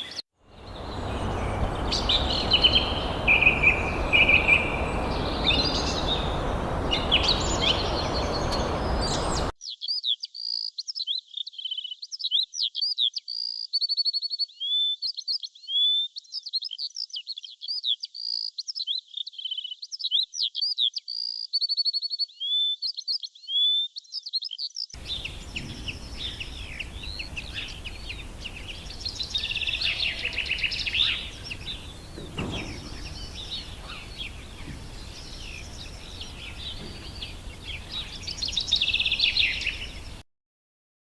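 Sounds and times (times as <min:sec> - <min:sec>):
small birds chirping: 0:00.0 - 0:40.2
songbird whistles and trills: 0:00.0 - 0:40.2
steady background hiss: 0:00.5 - 0:09.5, 0:25.0 - 0:40.2.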